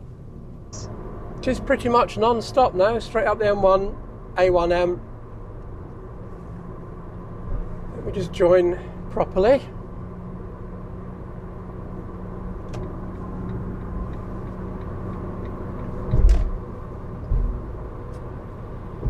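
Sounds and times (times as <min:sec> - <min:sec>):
road and engine rumble in vehicle cab: 0:00.0 - 0:19.0.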